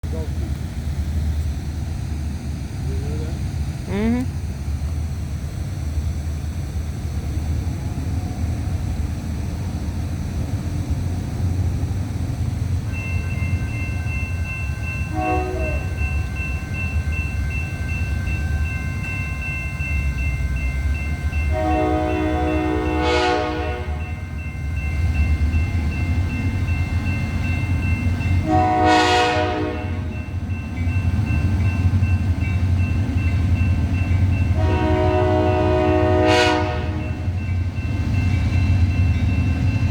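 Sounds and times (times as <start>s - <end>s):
locomotive air horn blasts: 15.1s - 15.9s, 21.5s - 24.1s, 28.4s - 30.1s, 34.6s - 37.1s.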